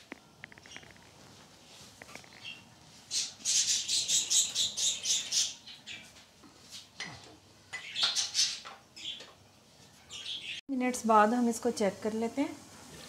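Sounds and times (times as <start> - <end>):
bird chirping: 2.3 - 6.1.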